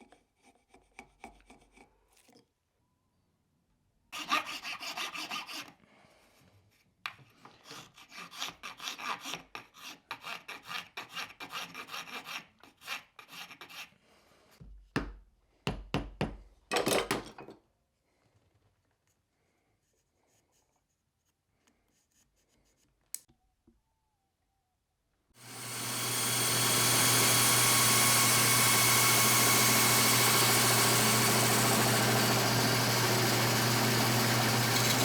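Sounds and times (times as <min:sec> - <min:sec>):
abrasive tool scraping wood: 0:07.5 - 0:14.0.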